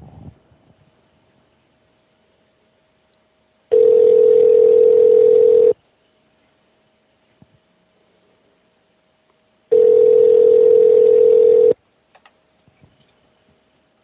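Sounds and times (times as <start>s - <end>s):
telephone ringback tone: 3.7s - 5.8s, 9.7s - 11.8s.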